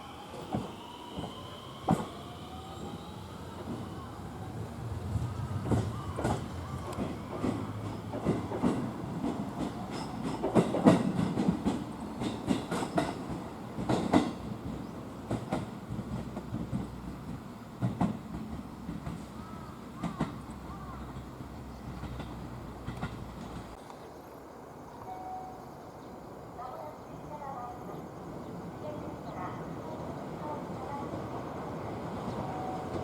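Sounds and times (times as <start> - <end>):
low train rumble: 0.0 - 33.0
train wheels clattering over rail joints: 4.9 - 23.8.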